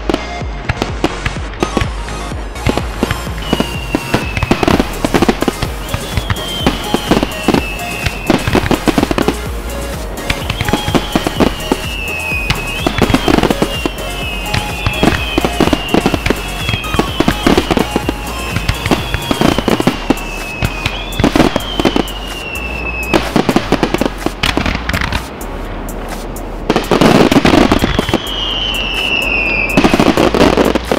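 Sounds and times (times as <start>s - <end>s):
firework shell bursts: 0.0s - 30.9s
high falling whistle: 3.4s - 5.0s, 5.8s - 9.0s, 10.3s - 23.5s, 27.2s - 30.2s.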